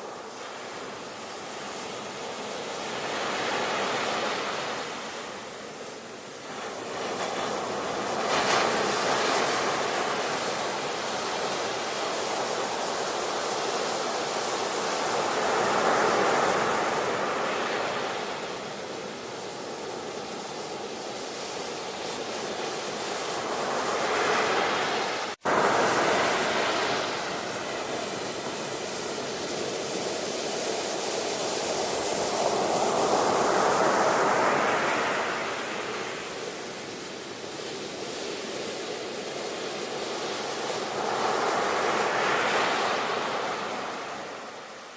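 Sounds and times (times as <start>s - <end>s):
waves breaking and washing in: 0.0s - 44.9s.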